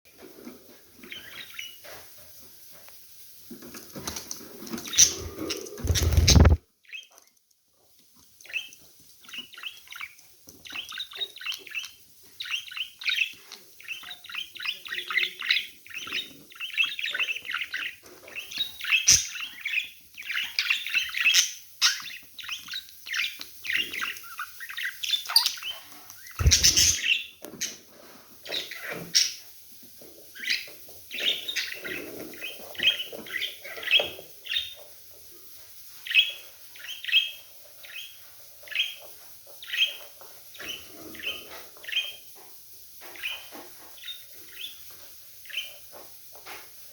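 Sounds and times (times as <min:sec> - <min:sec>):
budgerigars chirping: 0:01.0 - 0:01.8, 0:04.8 - 0:06.6, 0:08.5 - 0:27.8, 0:30.4 - 0:34.8, 0:36.1 - 0:42.2, 0:43.0 - 0:44.8, 0:45.4 - 0:46.0.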